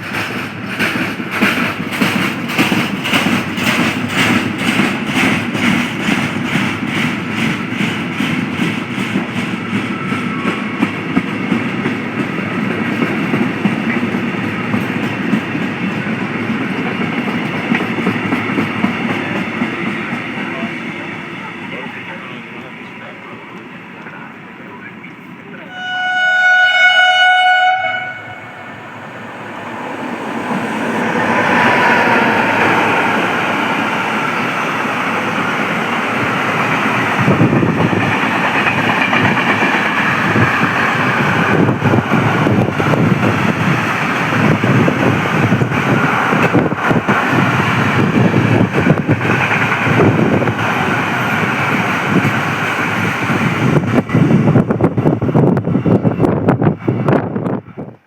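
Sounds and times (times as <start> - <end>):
train passing at speed: 0.0 - 58.0
train horn: 25.6 - 28.9
wheel clatter on rails: 35.9 - 52.4.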